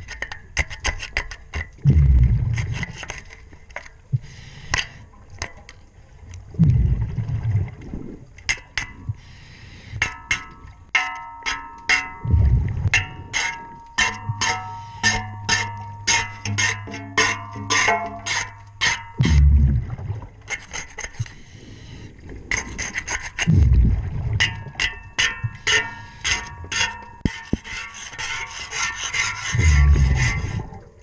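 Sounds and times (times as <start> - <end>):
scuba regulator bubbles rushing: 1.8 - 2.8, 6.5 - 8.3, 12.2 - 13.0, 19.2 - 20.4, 23.4 - 24.8.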